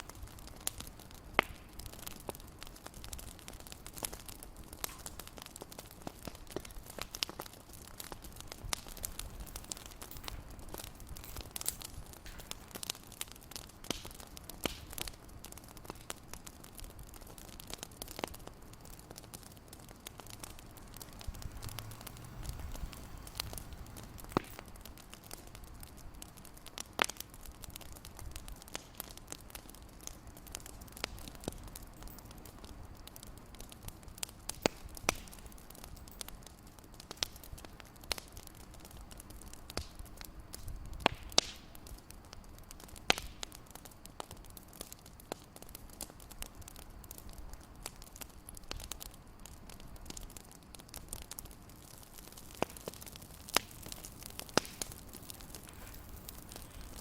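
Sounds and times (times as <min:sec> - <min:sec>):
soft steady hiss: 0:00.0 - 0:57.0
wood fire crackling: 0:00.0 - 0:57.0.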